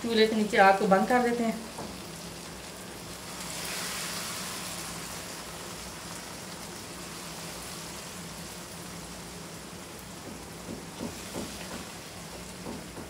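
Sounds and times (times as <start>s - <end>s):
curry sizzling in a wok: 0.0s - 13.0s.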